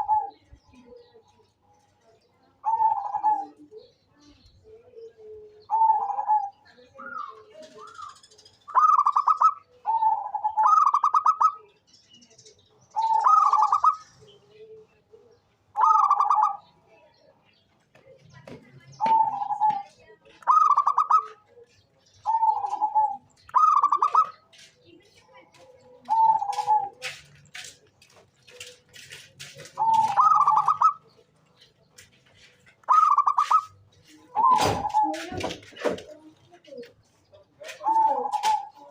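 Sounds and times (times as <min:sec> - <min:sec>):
dove cooing: 0:00.0 - 0:01.3, 0:02.6 - 0:04.0, 0:04.7 - 0:11.7, 0:12.9 - 0:16.8, 0:19.0 - 0:24.7, 0:25.5 - 0:27.7, 0:29.5 - 0:31.2, 0:32.8 - 0:36.8, 0:37.6 - 0:38.9.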